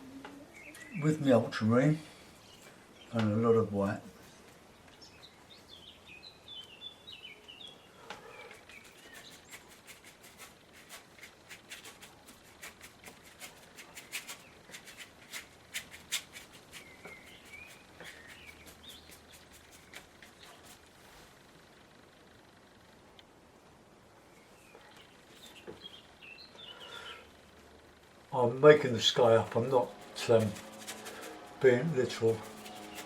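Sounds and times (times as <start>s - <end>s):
birds chirping: 0.2s - 4.0s, 4.6s - 9.8s, 16.0s - 20.9s, 24.2s - 33.0s.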